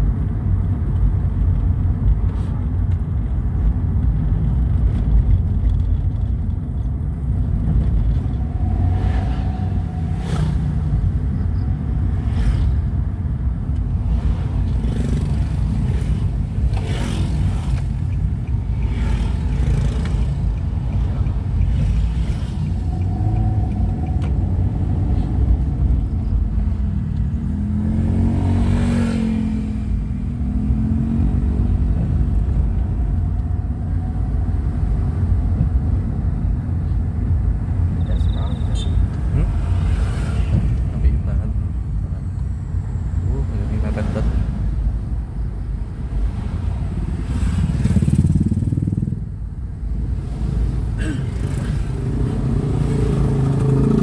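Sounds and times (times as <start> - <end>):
vehicle rumble on road: 0.0 - 54.0.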